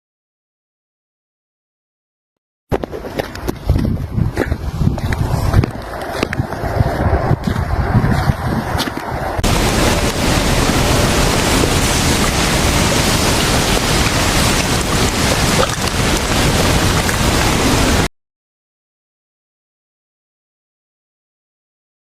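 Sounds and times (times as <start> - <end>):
blizzard wind buffeting microphone: 2.7 - 18.1.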